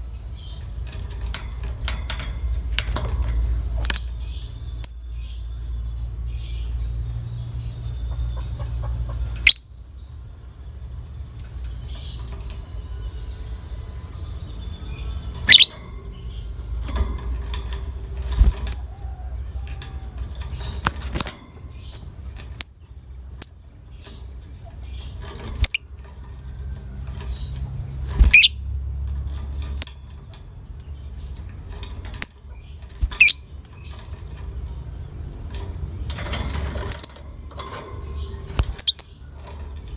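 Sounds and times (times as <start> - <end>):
bird sharp chirps: 11.6 - 17.0
bird high trill: 12.9 - 17.6, 27.1 - 28.6.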